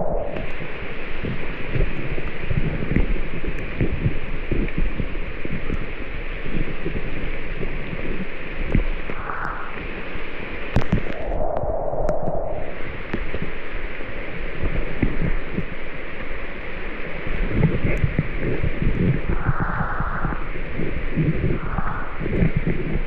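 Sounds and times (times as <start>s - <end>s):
heavy rain hissing: 8.9s - 11.4s, 12.3s - 23.0s.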